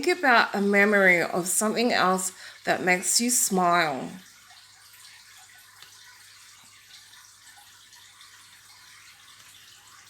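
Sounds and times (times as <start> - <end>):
faint steady hiss: 0.0 - 10.0
faint soft ticks: 5.8 - 6.0.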